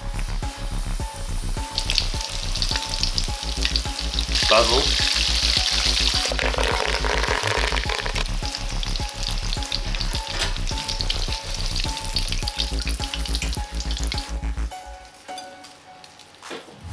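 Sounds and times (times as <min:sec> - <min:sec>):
background music: 0:00.0 - 0:16.9
food deep-frying in oil: 0:01.2 - 0:14.4.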